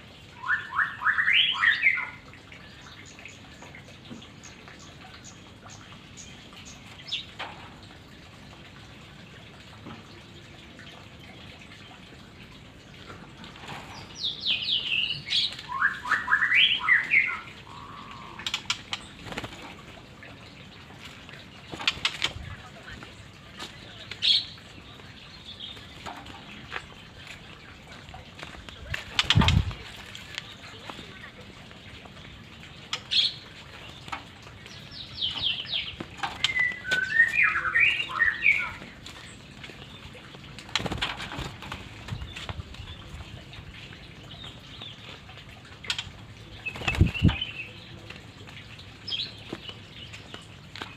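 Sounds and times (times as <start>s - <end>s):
bird singing whistled notes: 0.4s - 2.2s, 14.5s - 17.9s, 36.4s - 38.8s.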